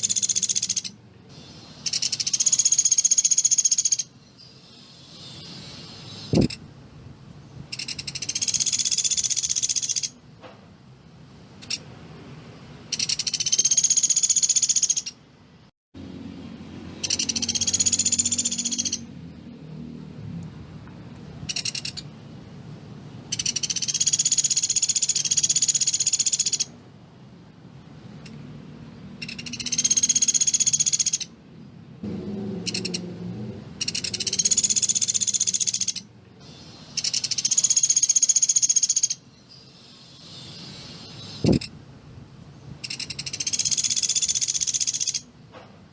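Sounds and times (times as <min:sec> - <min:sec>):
bird rattling calls: 0:00.0 - 0:04.1, 0:05.0 - 0:06.6, 0:07.7 - 0:10.2, 0:12.9 - 0:15.2, 0:17.0 - 0:19.1, 0:21.4 - 0:22.1, 0:23.3 - 0:26.7, 0:29.2 - 0:31.3, 0:33.8 - 0:39.2, 0:39.8 - 0:41.7, 0:42.8 - 0:45.3.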